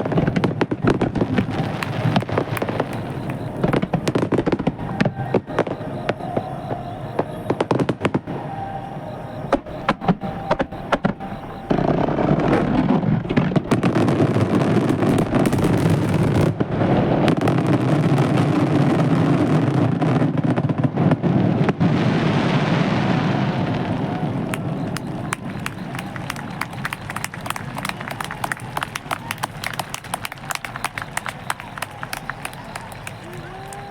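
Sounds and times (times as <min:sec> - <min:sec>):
fireworks barrage rumble: 0:00.0 - 0:33.9
fireworks bursts and crackles: 0:00.0 - 0:33.9.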